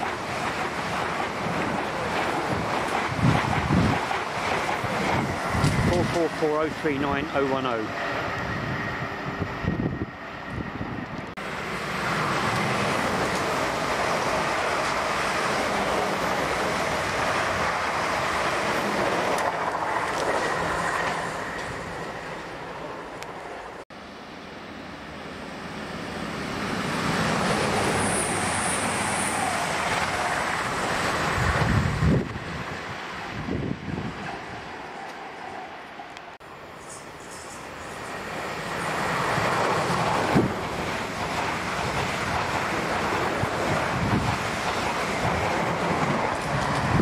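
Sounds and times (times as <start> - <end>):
train rumbling on rails: 0.0 - 47.0.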